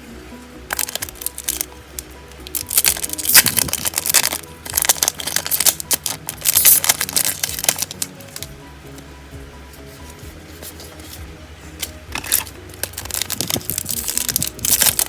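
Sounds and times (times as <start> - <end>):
quiet background music: 0.0 - 15.0
foil wrapper crinkling: 0.7 - 8.6, 11.8 - 15.0.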